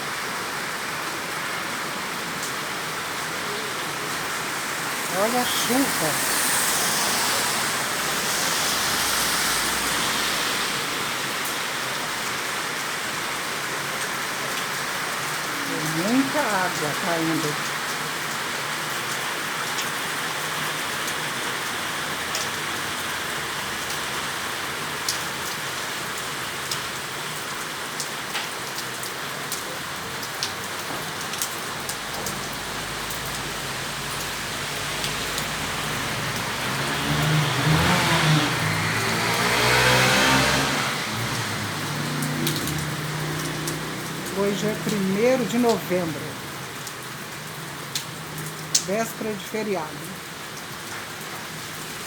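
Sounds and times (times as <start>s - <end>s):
heavy rain: 0.0s - 52.0s
motor vehicle passing: 3.8s - 12.5s, 31.0s - 44.9s.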